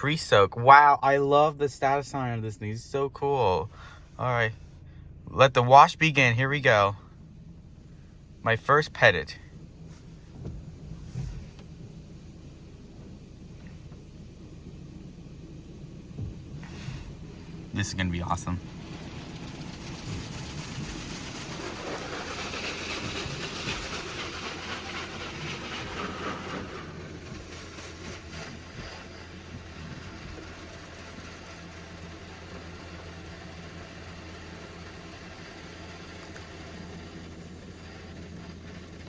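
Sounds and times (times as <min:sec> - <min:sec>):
steady low hum: 0:00.0 - 0:39.0
hiss of water spray: 0:18.4 - 0:39.0.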